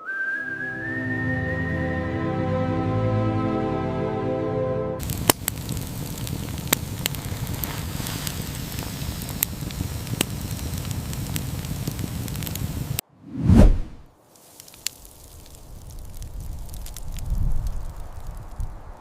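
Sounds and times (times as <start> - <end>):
wood fire crackling: 5.0 - 19.0
loud low whoosh: 13.2 - 14.1.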